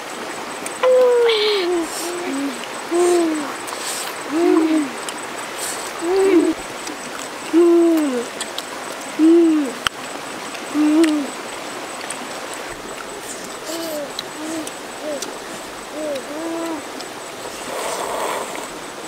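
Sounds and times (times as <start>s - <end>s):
bird hooting: 0.8s - 5.0s, 5.6s - 6.6s, 9.2s - 9.8s, 13.2s - 17.0s.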